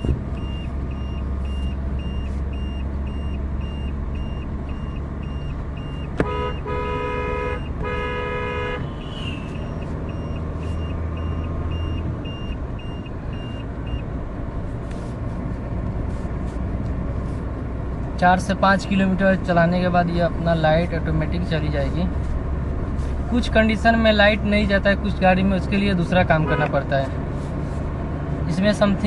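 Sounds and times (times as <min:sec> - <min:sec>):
high beeps: 0:00.0 - 0:06.6, 0:09.0 - 0:14.0
car engine and road noise: 0:00.0 - 0:29.0
vehicle horn: 0:06.2 - 0:09.5, 0:26.4 - 0:26.7.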